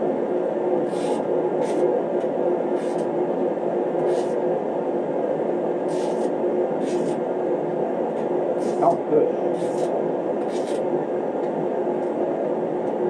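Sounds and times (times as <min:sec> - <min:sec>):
constant hum: 0:00.0 - 0:13.0
space heater blowing: 0:00.0 - 0:13.0.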